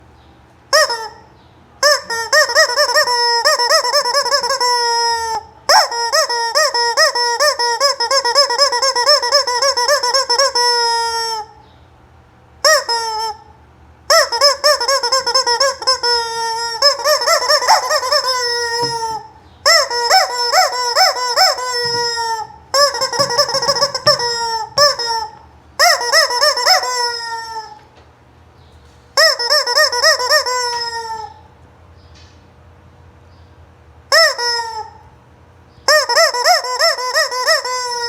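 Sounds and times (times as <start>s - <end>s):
hen cackling: 12.6s - 27.9s, 29.2s - 31.5s.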